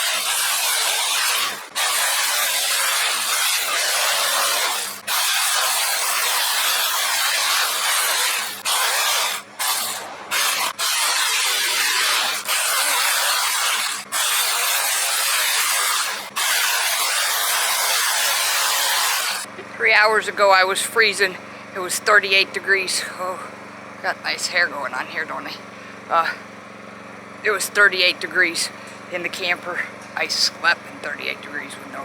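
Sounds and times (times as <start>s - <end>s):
chainsaw cutting wood: 0.0s - 23.5s.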